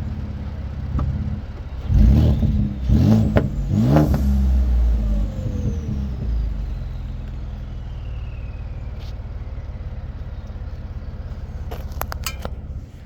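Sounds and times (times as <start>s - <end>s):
vehicle engine idling: 0.0s - 13.0s
faint falling whine: 4.6s - 13.0s.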